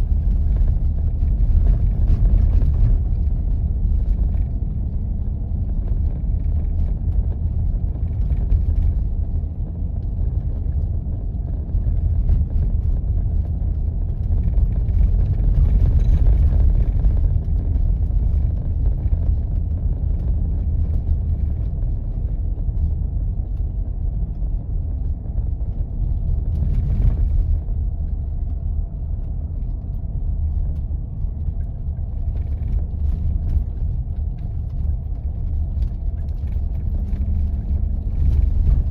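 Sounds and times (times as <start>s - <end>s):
vehicle engine and tyres rumbling: 0.0s - 38.9s.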